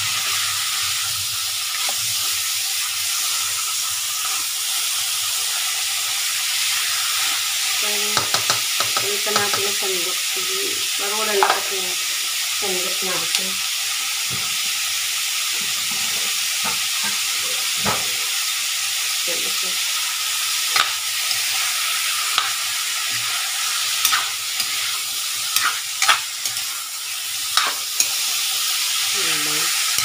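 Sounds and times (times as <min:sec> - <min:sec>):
meat sizzling in a wok: 0:00.0 - 0:30.0
spatula scraping and clicking pan: 0:01.7 - 0:02.3, 0:20.7 - 0:26.8, 0:27.4 - 0:28.3.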